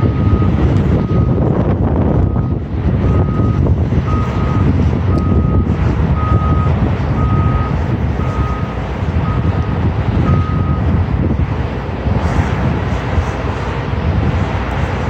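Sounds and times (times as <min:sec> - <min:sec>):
reversing alarm beeps: 0:00.0 - 0:01.5, 0:02.2 - 0:10.9
heavy truck engine rumbling: 0:00.0 - 0:15.0.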